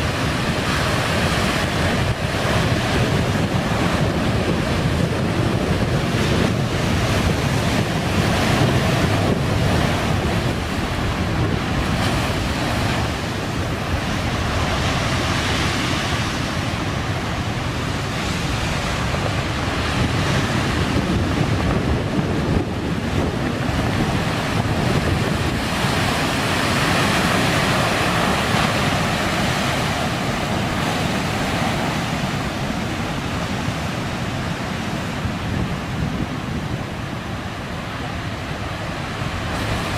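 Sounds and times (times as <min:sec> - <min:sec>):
heavy surf pounding the shore: 0:00.0 - 0:39.9
wind buffeting the microphone: 0:00.0 - 0:39.9.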